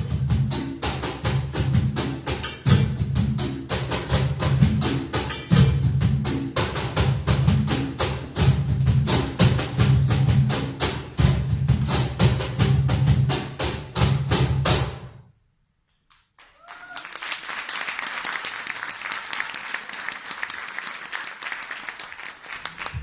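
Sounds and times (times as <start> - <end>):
live percussion music: 0.0 - 15.1
audience applauding: 16.3 - 23.0.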